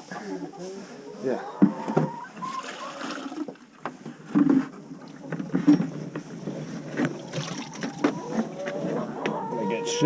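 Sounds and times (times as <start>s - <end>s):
water sloshing in a bucket: 1.7s - 9.0s
bucket knocks and clunks: 4.3s - 8.6s.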